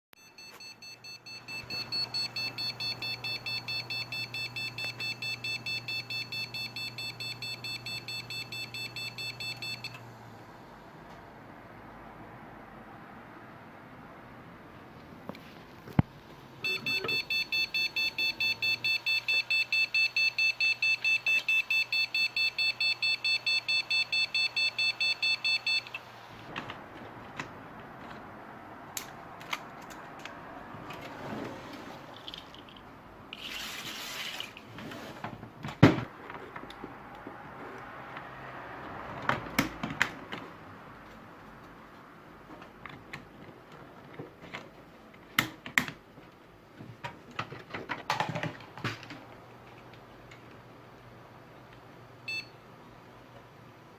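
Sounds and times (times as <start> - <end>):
rapid high-pitched beeps: 16.6 - 25.9.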